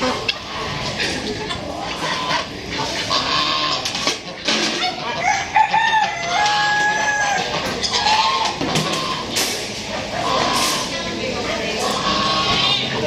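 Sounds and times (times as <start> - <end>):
chickens clucking: 0.0 - 13.0
roosters crowing: 4.8 - 9.3.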